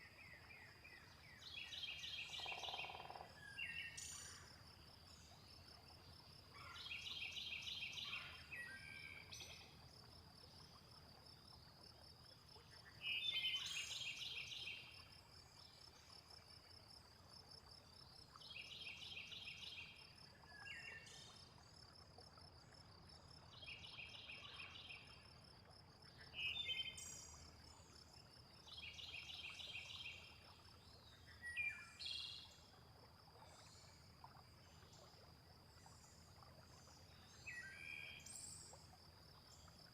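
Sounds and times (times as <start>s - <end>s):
repeated insect calls: 1.1s - 17.6s, 24.6s - 39.9s
faint rushing water: 3.3s - 39.9s.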